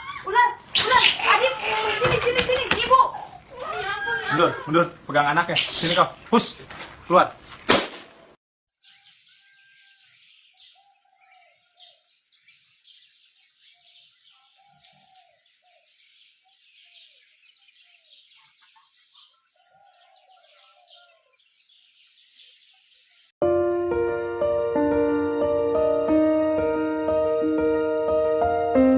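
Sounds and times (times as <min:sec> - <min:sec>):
small birds chirping: 0:00.0 - 0:07.3, 0:08.7 - 0:23.4
music: 0:23.4 - 0:28.9.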